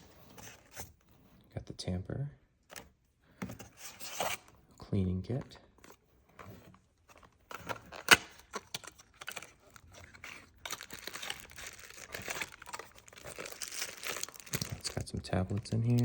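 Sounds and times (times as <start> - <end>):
packaging crinkling and rustling: 5.8 - 16.0
packaging clicks and knocks: 7.1 - 16.0.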